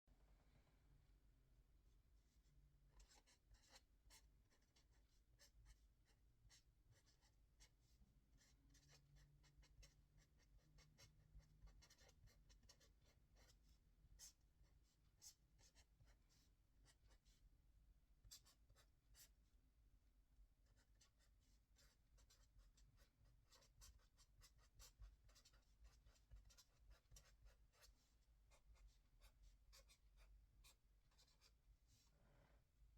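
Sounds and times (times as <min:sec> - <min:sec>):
pen scratching on paper: 0:03.0 - 0:05.8, 0:06.5 - 0:17.3, 0:18.3 - 0:19.3, 0:20.7 - 0:32.1.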